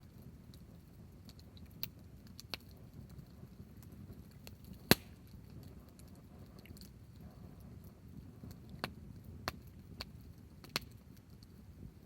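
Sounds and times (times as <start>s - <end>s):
low rumble of burning: 0.0s - 12.0s
wood fire crackling: 0.0s - 12.0s
sharp pops: 4.5s - 5.4s.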